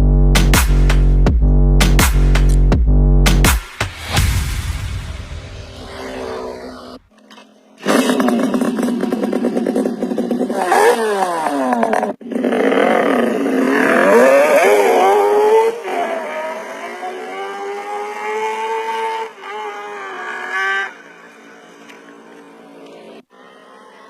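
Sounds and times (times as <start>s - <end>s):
two-stroke motorcycle engine revving: 7.8s - 22.7s.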